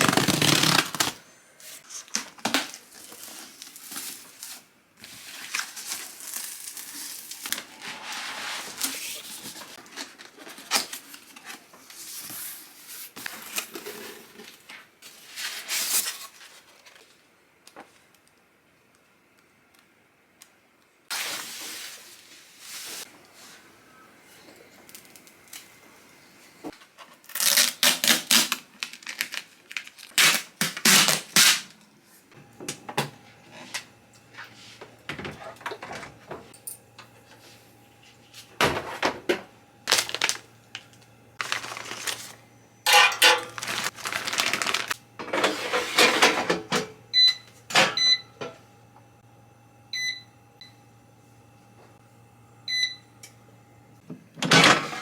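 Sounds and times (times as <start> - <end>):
rustling and clatter of objects: 0.0 - 17.2, 41.4 - 46.8.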